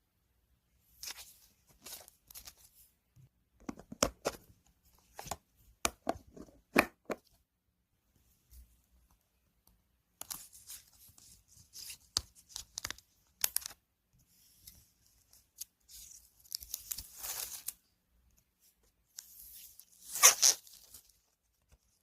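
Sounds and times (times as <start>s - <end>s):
tape being torn: 20.1s - 20.9s.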